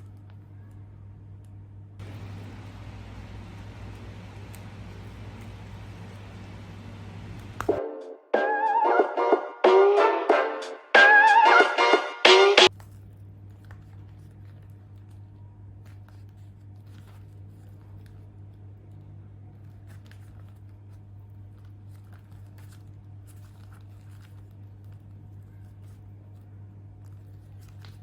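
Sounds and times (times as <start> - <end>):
low electrical hum: 0.0 - 7.8, 12.7 - 28.0
music: 7.8 - 12.7.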